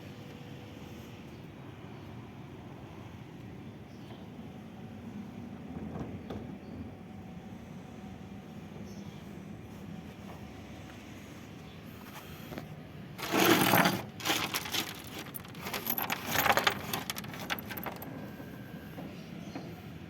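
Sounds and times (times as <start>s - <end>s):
loud rattle: 13.2s - 18.2s
hard objects clattering: 13.2s - 18.3s.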